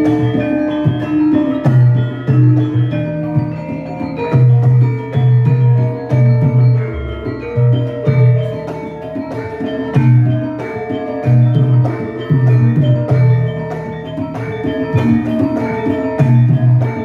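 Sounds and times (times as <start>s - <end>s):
metallophones ringing: 0.0s - 17.0s.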